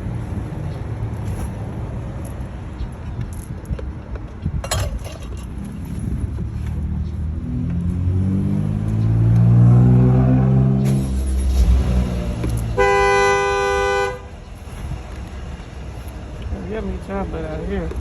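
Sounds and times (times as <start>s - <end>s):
car engine starting and revving: 7.2s - 13.8s
car horn blast: 12.7s - 14.4s.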